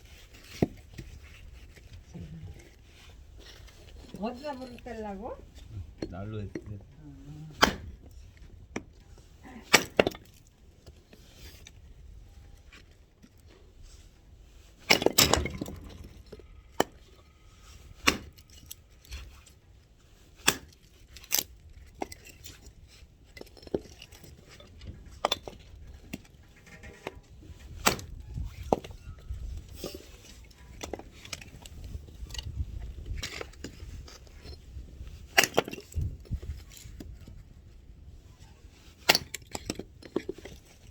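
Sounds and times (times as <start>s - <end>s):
axe strikes splitting firewood: 7.6s - 8.0s, 9.7s - 10.2s, 18.0s - 18.4s, 20.4s - 20.8s, 27.8s - 28.1s.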